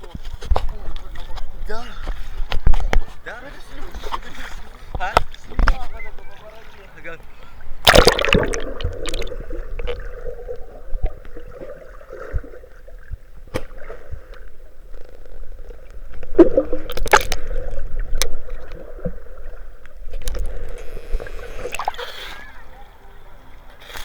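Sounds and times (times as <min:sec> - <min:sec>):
seawater sloshing and gurgling: 0:07.6 - 0:22.6
water splashes: 0:07.7 - 0:22.6.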